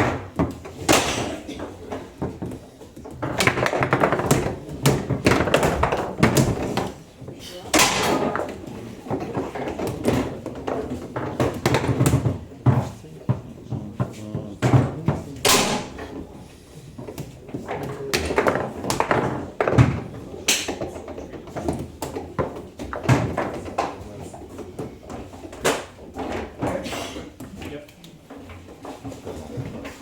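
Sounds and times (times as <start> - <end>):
foosball ball knocking: 0.0 - 7.1, 7.7 - 16.3, 17.1 - 24.0
rods banging against bumpers: 14.0 - 16.4.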